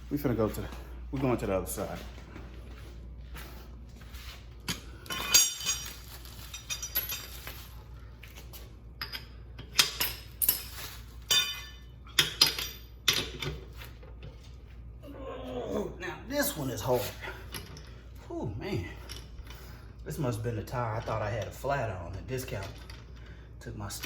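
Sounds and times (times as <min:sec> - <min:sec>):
metal tools clinking: 0:04.6 - 0:07.9, 0:09.0 - 0:13.6.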